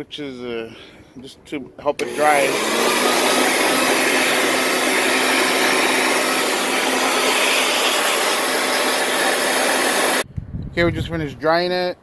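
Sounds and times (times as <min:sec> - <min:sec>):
electric blower rushing air: 0:02.0 - 0:10.2.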